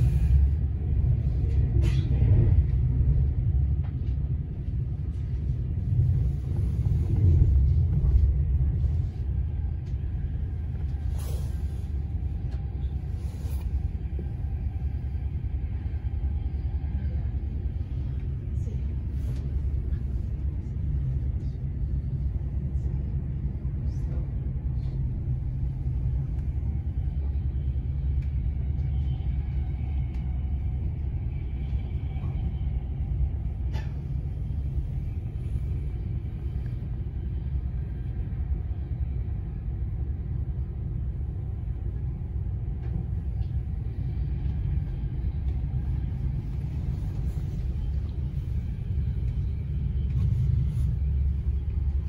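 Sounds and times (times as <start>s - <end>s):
train rumbling on track: 0.0s - 52.0s.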